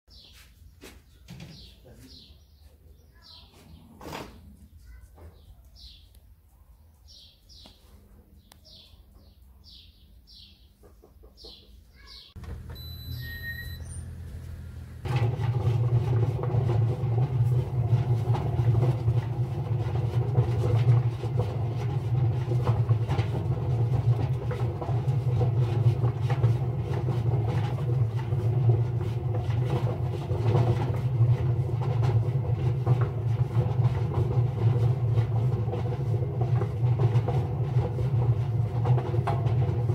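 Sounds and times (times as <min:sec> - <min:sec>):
birds chirping: 0:00.1 - 0:04.0, 0:04.7 - 0:15.1
low hum: 0:12.4 - 0:15.1
washing machine drone: 0:12.4 - 0:39.9.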